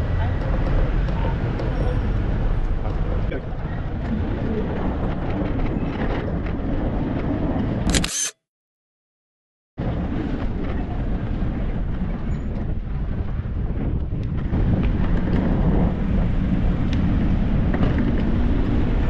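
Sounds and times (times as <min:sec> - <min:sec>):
outdoor street background noise: 0:00.0 - 0:08.4, 0:09.8 - 0:19.0
sharp click: 0:07.9 - 0:08.4.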